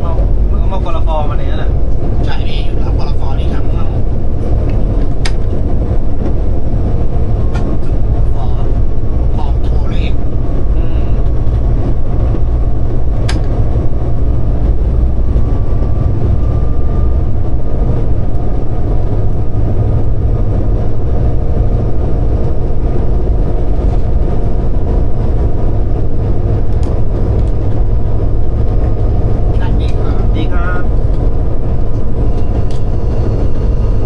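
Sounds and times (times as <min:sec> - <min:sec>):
faint whine: 0:00.0 - 0:34.0
train engine and wheels drone: 0:00.0 - 0:34.0.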